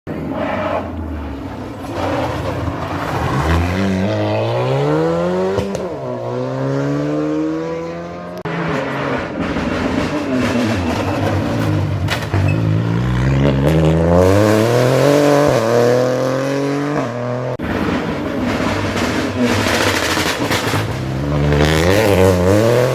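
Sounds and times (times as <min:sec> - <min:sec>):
rally car engine accelerating: 0:00.1 - 0:22.9
engine cracks: 0:01.0 - 0:13.9, 0:17.6 - 0:22.9.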